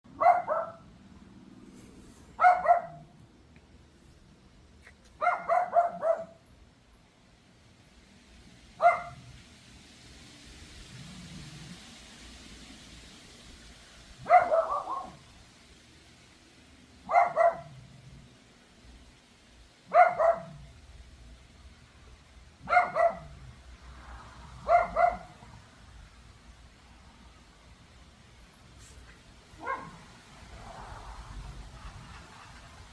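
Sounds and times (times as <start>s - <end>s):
small dog barking: 0.1s - 0.9s, 2.4s - 3.1s, 5.2s - 6.4s, 8.8s - 9.3s, 14.2s - 15.3s, 17.0s - 17.8s, 19.9s - 20.7s, 22.6s - 23.4s, 24.6s - 25.4s, 29.6s - 30.1s
small dog yapping: 5.2s - 6.4s, 22.7s - 23.3s.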